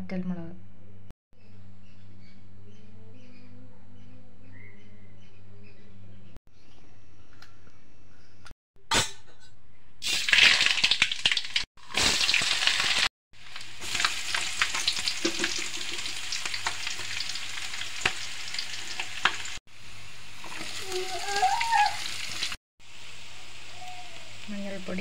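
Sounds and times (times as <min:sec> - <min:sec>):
hot oil sizzling and crackling: 0:10.0 - 0:25.0.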